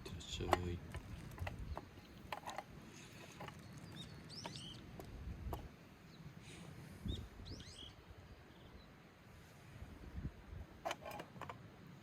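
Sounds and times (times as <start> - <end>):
songbird chirping: 0.1 - 9.0.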